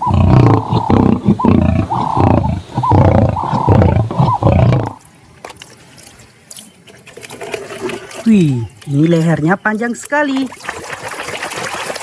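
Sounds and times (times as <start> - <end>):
lion roaring and grunting: 0.0 - 5.0.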